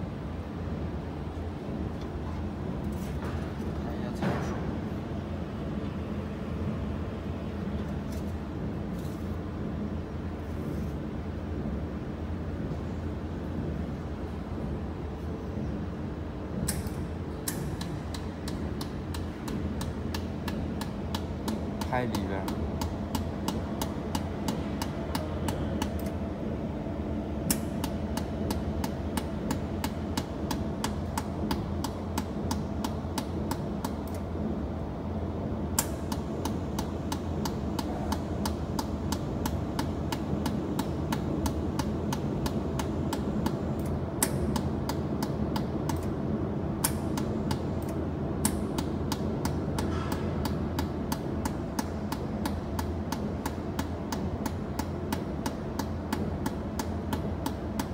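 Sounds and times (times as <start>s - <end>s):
laser welder snapping clicks: 16.6s - 26.2s, 27.4s - 34.3s, 35.7s - 46.2s.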